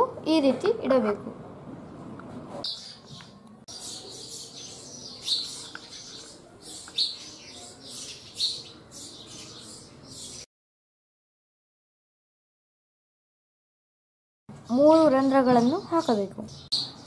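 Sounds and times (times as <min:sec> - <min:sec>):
small birds chirping: 0:02.6 - 0:10.5, 0:14.5 - 0:17.0.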